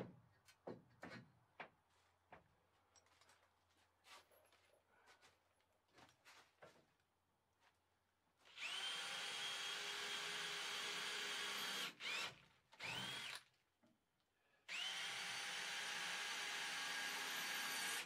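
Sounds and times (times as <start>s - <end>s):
power drill running: 8.5s - 13.4s, 14.7s - 18.0s.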